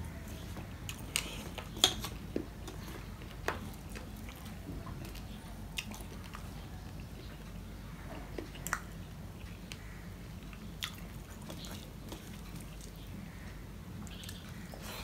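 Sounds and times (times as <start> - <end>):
chewing: 0.9 - 9.8, 10.4 - 13.1.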